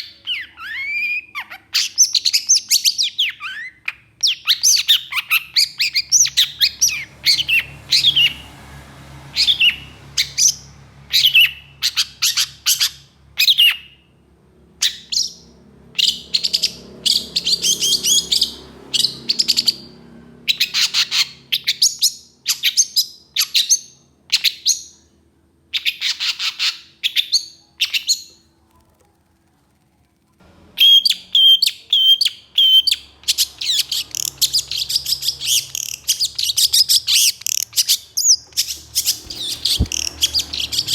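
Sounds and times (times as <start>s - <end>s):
bird singing harsh notes: 14.8s - 25.1s, 30.8s - 40.9s.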